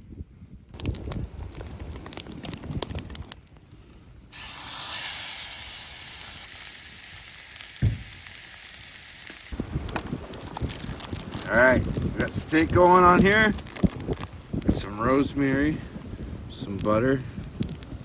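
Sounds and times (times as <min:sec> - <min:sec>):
steak sizzling in a pan: 0:04.3 - 0:09.6
low thump: 0:07.8 - 0:08.1.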